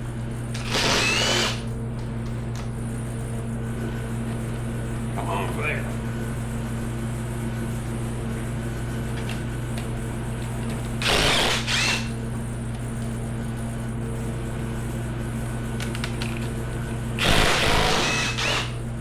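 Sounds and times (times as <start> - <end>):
steady low hum: 0.0 - 19.0
power tool burst: 0.6 - 1.6, 11.0 - 12.2, 17.2 - 18.8.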